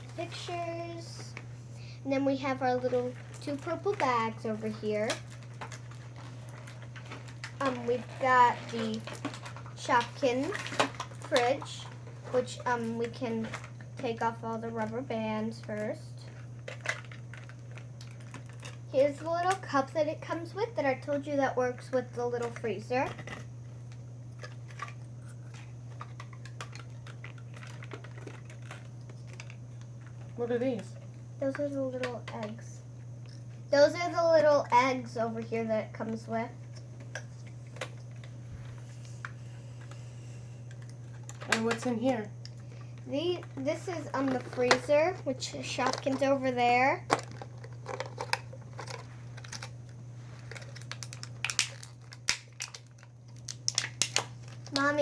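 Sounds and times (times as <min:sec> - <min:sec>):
steady low hum: 0:00.0 - 0:55.0
plastic clicks and crinkling: 0:15.6 - 0:18.8, 0:22.4 - 0:32.6, 0:40.7 - 0:42.6, 0:43.4 - 0:45.0, 0:45.8 - 0:46.4, 0:47.1 - 0:49.8, 0:50.4 - 0:55.0.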